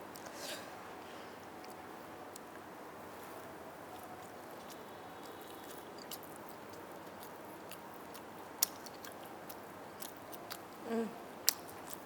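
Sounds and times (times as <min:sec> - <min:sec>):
chewing with wet mouth clicks: 0:04.0 - 0:10.8, 0:11.4 - 0:12.0.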